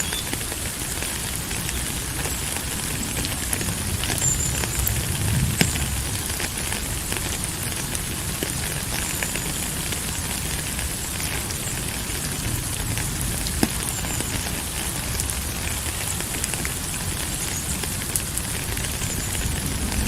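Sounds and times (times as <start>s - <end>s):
rain drop ticks: 0.0s - 20.0s
steady rain hiss: 0.0s - 20.0s
low rumble: 3.6s - 7.0s.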